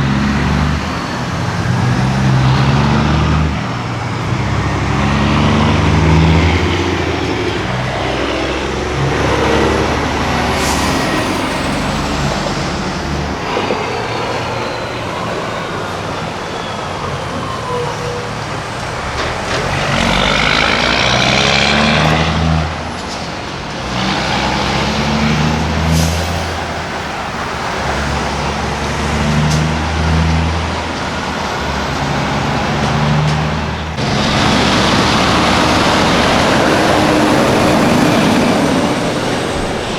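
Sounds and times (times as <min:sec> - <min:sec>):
diesel truck engine shifting gears: 0:00.0 - 0:39.9
compressed air hiss: 0:10.4 - 0:12.7.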